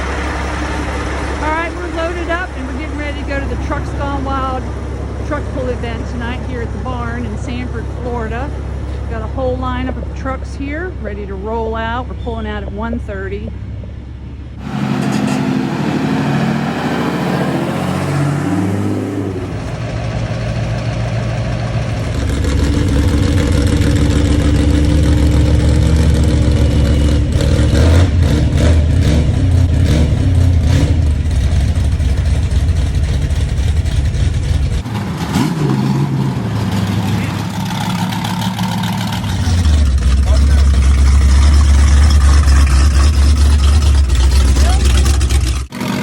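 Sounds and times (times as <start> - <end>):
truck engine running: 0.0 - 46.0.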